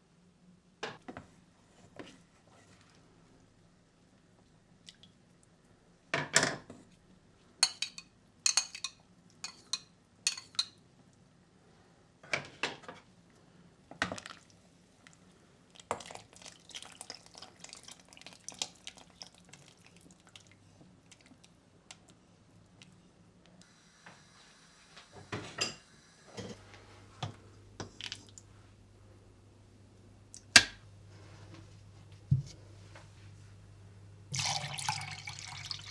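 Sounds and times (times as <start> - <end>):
dishes and utensils clinking: 7.6 - 10.8.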